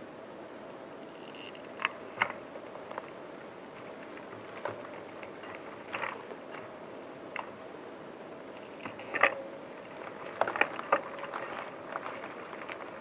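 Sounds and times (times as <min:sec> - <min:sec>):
dry twigs crunching and snapping: 0:09.9 - 0:13.0.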